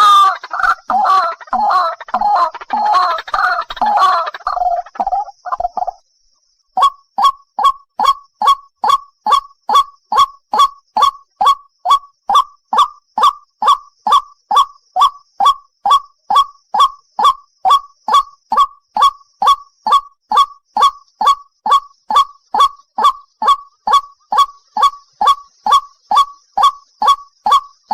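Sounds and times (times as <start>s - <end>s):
waterhen calling harshly: 0.0s - 5.4s, 19.0s - 27.7s.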